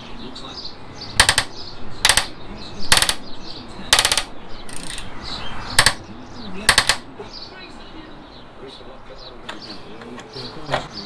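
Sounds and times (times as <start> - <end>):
socket ratchet clicking: 1.2 - 3.3, 3.9 - 5.1, 5.8 - 6.0, 6.7 - 7.0.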